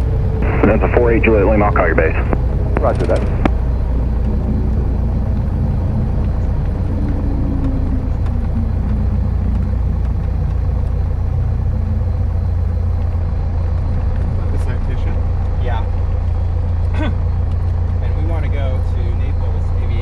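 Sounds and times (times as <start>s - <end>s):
aircraft engine droning in cabin: 0.0s - 13.2s.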